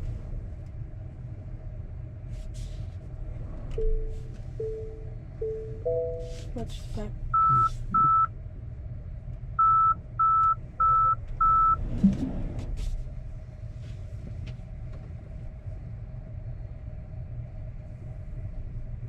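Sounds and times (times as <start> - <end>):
truck rumbling from inside cab: 0.0 - 19.0
electronic alert beeps: 3.8 - 6.4, 7.4 - 8.3.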